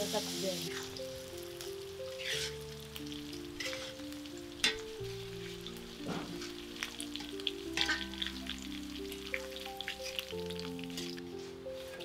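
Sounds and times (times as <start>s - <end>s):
chicken sizzling in oil: 0.0s - 12.0s
metal spatula scraping wok: 2.1s - 2.7s, 3.5s - 4.0s, 7.2s - 8.2s.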